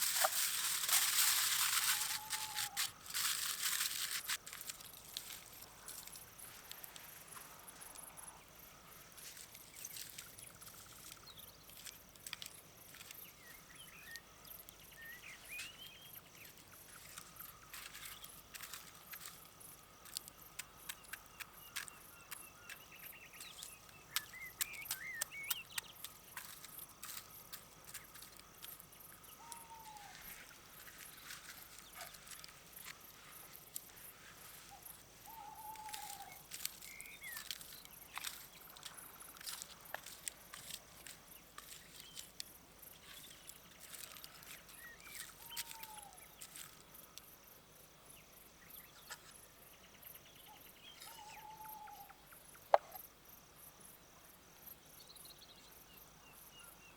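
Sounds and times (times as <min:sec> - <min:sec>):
insect trill: 0:00.0 - 0:56.9
bird chirps: 0:20.9 - 0:26.1.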